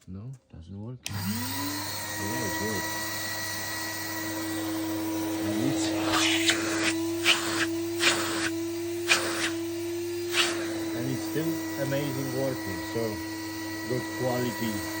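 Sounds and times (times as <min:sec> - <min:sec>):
vacuum cleaner motor humming: 0:01.1 - 0:15.0
sharp hissing bursts: 0:05.6 - 0:09.6, 0:10.2 - 0:11.9.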